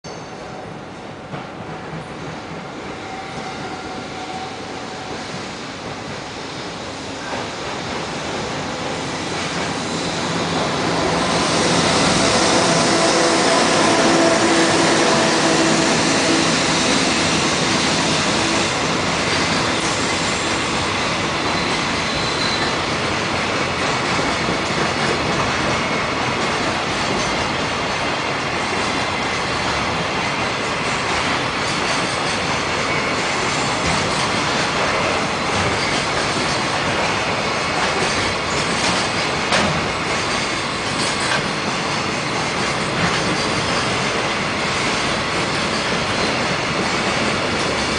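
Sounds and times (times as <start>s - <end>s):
steel wheels rushing on rail: 0.1s - 47.9s
rail-joint clicks: 14.6s - 47.9s.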